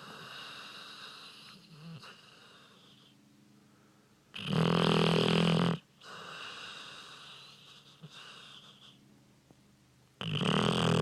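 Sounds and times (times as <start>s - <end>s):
dog snoring: 0.0s - 3.1s, 4.3s - 9.0s, 10.2s - 11.0s.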